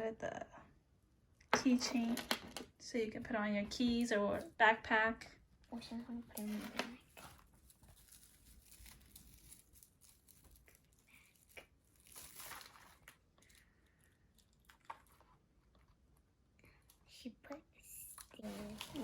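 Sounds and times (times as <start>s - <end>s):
gift packaging rustling: 5.7s - 16.0s, 18.0s - 19.0s.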